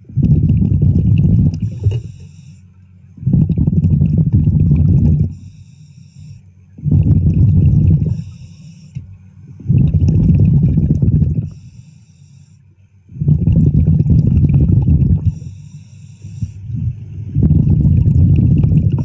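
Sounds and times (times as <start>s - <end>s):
low bubbling exhaled air: 0.0s - 2.1s, 3.2s - 5.4s, 6.8s - 8.4s, 9.6s - 11.6s, 13.1s - 15.5s, 16.4s - 19.0s.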